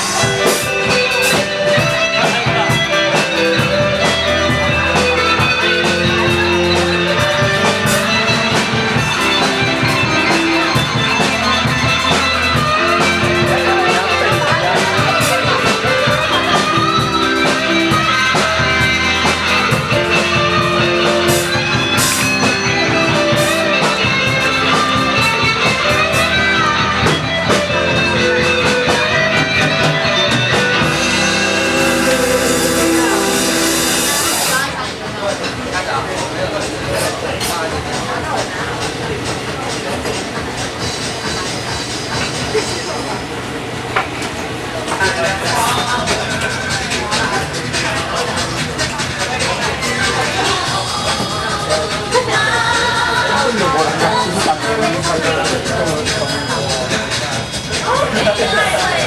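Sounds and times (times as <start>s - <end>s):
electric guitar: 0.0s - 35.0s
live rock band playing: 0.0s - 43.2s, 45.0s - 59.0s.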